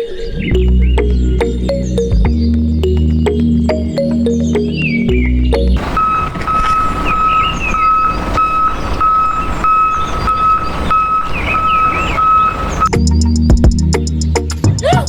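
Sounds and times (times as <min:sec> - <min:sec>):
reversing alarm beeping: 0:00.0 - 0:13.0
chirps: 0:00.0 - 0:14.8.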